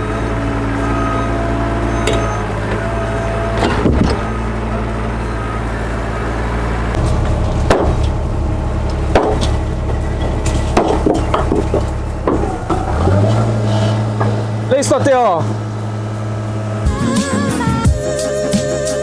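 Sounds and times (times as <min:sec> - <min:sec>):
heavy truck engine running: 0:00.0 - 0:19.0
short knocks and clatters: 0:07.0 - 0:08.2, 0:08.8 - 0:15.8.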